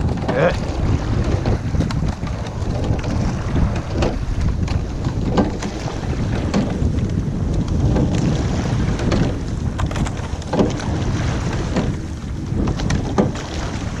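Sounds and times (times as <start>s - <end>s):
boat moving on water: 0.0s - 14.0s
splashes or knocks: 0.0s - 14.0s
wind buffeting microphone: 0.0s - 14.0s.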